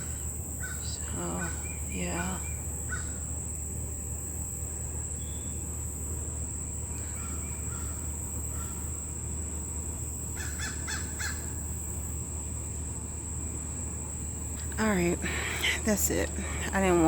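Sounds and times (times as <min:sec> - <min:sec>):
crow cawing: 0:10.4 - 0:11.4.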